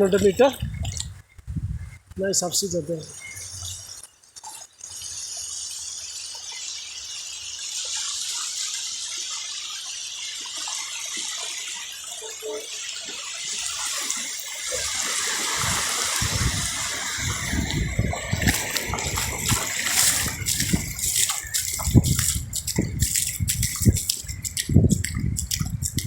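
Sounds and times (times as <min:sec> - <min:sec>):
sea surf washing on beach: 0:12.2 - 0:24.6.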